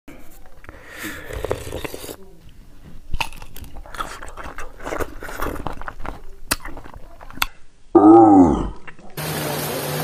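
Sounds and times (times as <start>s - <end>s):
crisp crunching of raw mango: 3.0s - 7.5s.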